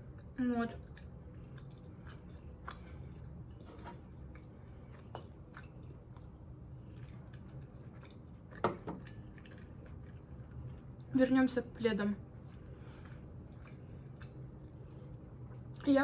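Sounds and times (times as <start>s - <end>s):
person chewing food: 0.0s - 11.1s, 12.2s - 15.9s
low steady hum: 0.0s - 16.0s.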